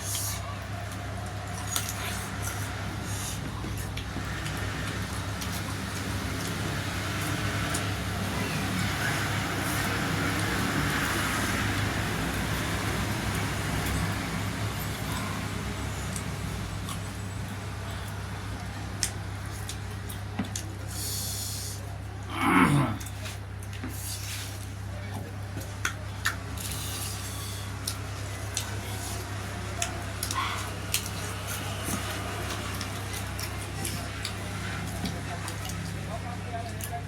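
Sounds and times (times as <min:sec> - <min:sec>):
chewing clicks and smacks: 0:19.0 - 0:20.8, 0:25.6 - 0:26.8, 0:27.8 - 0:37.0.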